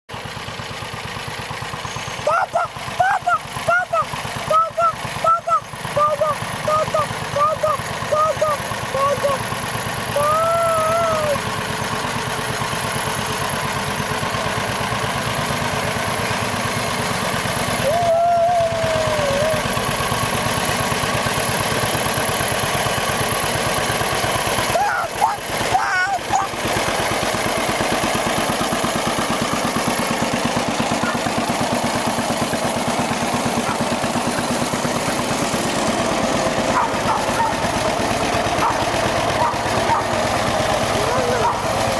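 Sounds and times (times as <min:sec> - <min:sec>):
tractor engine running: 0:00.1 - 0:41.9
child calling out: 0:02.3 - 0:09.5, 0:10.1 - 0:11.4, 0:17.8 - 0:19.7, 0:24.7 - 0:26.6.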